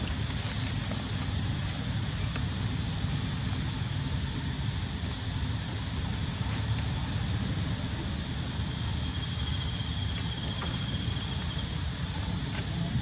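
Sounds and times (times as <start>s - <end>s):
high insect drone: 2.8s - 13.0s.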